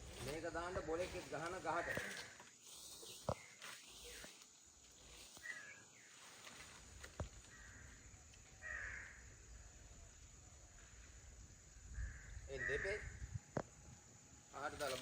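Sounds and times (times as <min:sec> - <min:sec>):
faint bird calls: 0:01.7 - 0:11.2, 0:11.8 - 0:13.8.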